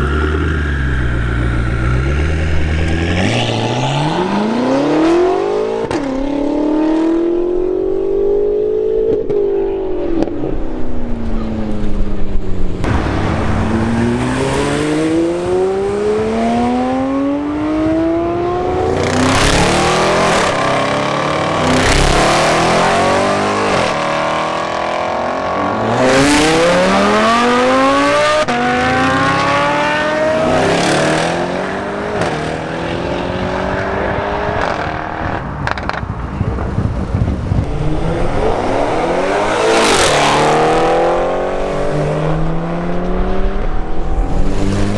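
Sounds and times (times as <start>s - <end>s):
tuned car engines accelerating: 0.0s - 44.9s
loud noisy blasts: 11.1s - 17.2s, 18.4s - 24.7s.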